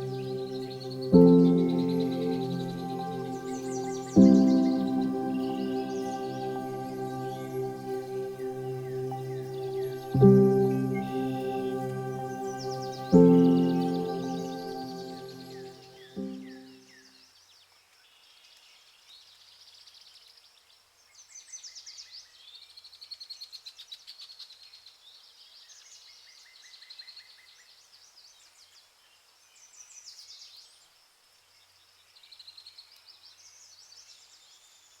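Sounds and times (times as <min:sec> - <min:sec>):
background music: 0:00.0 - 0:16.7
birds chirping and trilling: 0:00.0 - 0:16.7.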